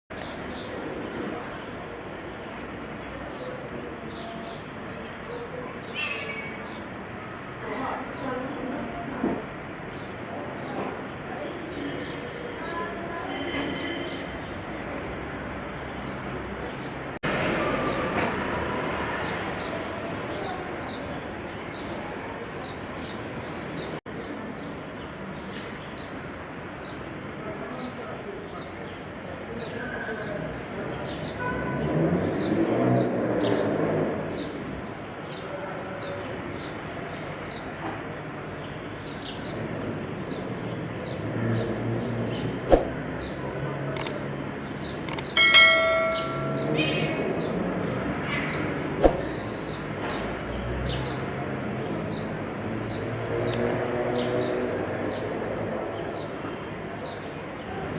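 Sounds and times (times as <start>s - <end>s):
small birds chirping: 0.1s - 7.0s, 34.3s - 57.9s
sharp clicks: 44.0s - 44.2s, 45.0s - 45.4s
high bird chirps: 45.1s - 47.2s
metallic bell-like ring: 45.4s - 47.2s.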